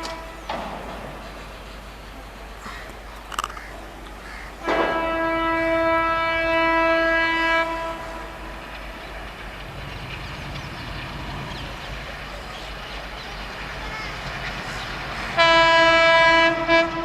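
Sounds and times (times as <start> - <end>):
locomotive horn blast: 0.0 - 0.5, 4.6 - 8.8, 15.4 - 17.0
train rumbling past: 0.0 - 17.0.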